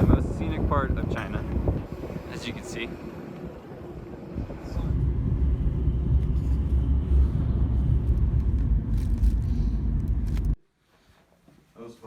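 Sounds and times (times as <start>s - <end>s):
loud low rumble: 0.0s - 10.6s.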